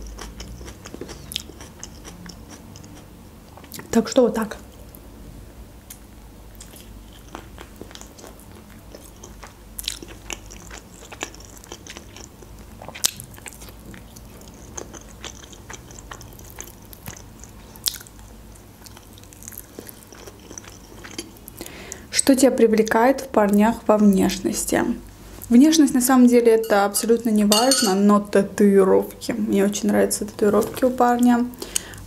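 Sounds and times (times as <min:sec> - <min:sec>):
person chewing with mouth smacks: 0:00.0 - 0:03.9, 0:05.9 - 0:21.7.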